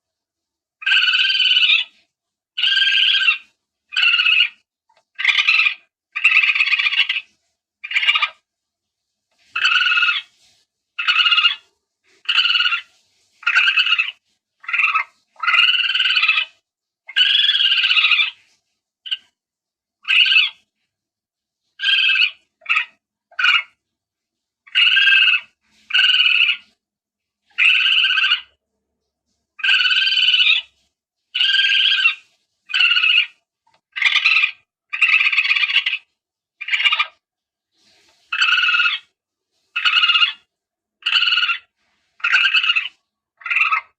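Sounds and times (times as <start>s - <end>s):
palm civet calls: 0.8s - 1.9s, 2.6s - 8.4s, 9.5s - 10.3s, 11.0s - 16.5s, 17.1s - 18.4s, 20.0s - 20.6s, 21.8s - 23.8s, 24.7s - 26.7s, 27.5s - 28.6s, 29.6s - 30.7s, 31.4s - 37.2s, 38.3s - 39.1s, 39.8s - 43.9s.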